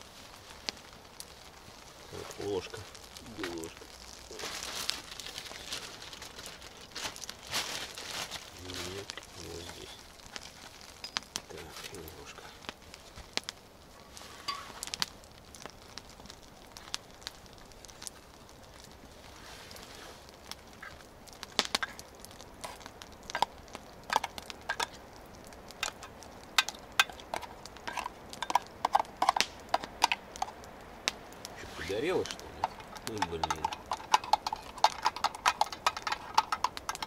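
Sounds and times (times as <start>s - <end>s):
metal spoon scraping a pot: 26.6s - 30.5s, 32.3s - 37.0s.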